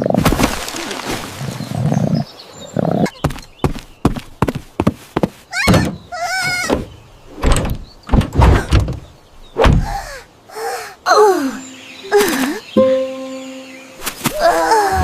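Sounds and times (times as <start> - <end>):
squeaky falling glides: 5.5 - 10.1
cartoon knocks and thuds: 5.6 - 10.0.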